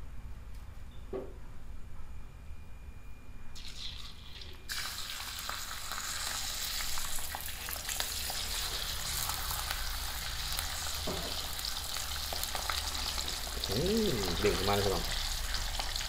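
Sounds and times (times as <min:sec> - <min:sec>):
frying in hot oil sizzling: 0:03.6 - 0:16.0.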